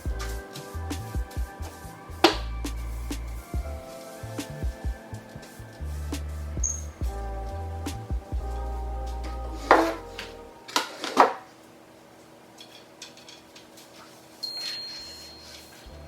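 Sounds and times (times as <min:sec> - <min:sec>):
background music with bass: 0:00.0 - 0:10.6.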